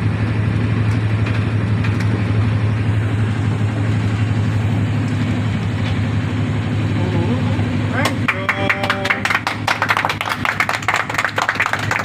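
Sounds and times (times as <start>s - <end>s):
background rumble: 0.0s - 8.4s
engine idling hum: 0.0s - 12.0s.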